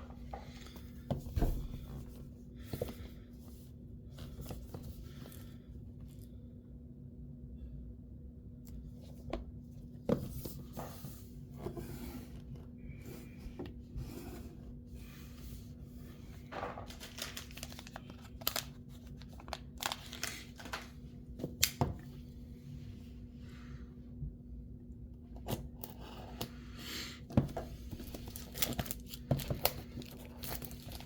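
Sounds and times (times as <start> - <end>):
faint steady hum: 0.0 - 31.0
packaging tearing and crinkling: 16.9 - 20.9, 28.1 - 31.0.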